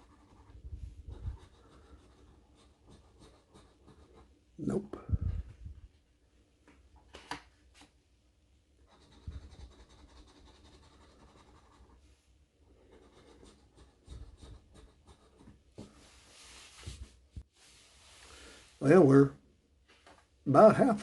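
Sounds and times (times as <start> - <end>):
scratching lottery ticket coating: 1.6 - 2.4.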